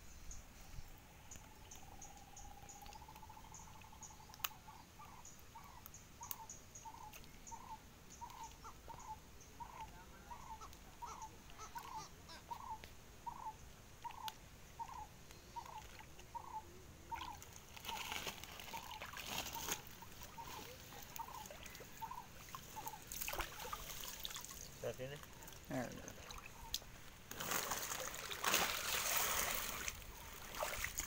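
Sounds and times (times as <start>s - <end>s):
water splashing: 17.1s - 31.0s.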